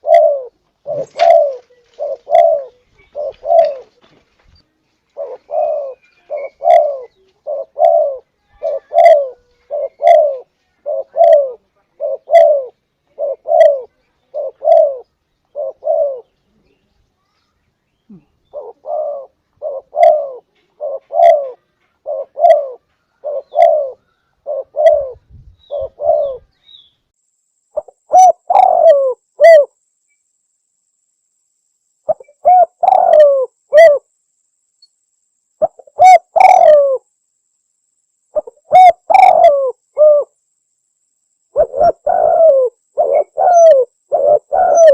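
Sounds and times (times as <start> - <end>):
dove cooing: 0.0 - 4.2, 5.1 - 16.4, 18.1 - 26.5, 27.8 - 29.8, 32.1 - 34.1, 35.6 - 37.0, 38.3 - 40.4, 41.5 - 44.9.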